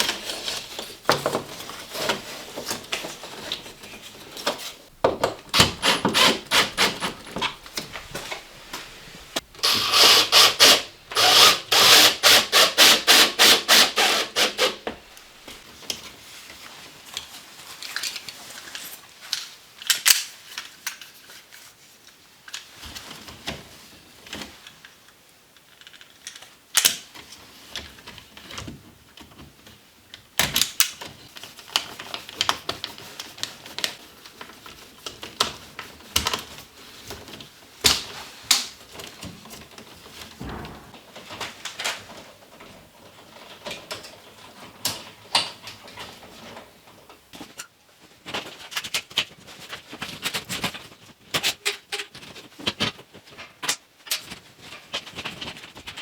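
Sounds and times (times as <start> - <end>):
tool clicks and knocks: 40.4 - 41.0.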